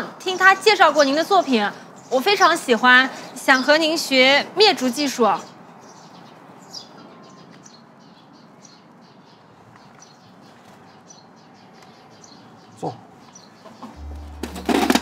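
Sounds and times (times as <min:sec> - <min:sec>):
small birds chirping: 0:00.0 - 0:14.9
brief low sound: 0:14.0 - 0:15.0.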